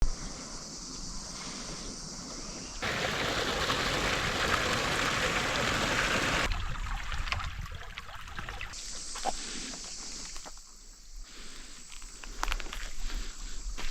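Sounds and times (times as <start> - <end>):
running water: 2.8 - 8.8.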